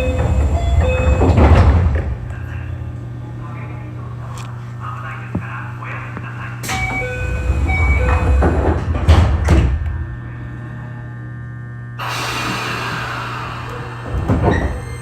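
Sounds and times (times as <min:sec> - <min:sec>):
train doors closing thuds: 0:00.0 - 0:02.6, 0:06.6 - 0:10.2, 0:12.0 - 0:15.0
steady electrical hum: 0:00.0 - 0:15.0
compressed air hiss: 0:12.0 - 0:14.5.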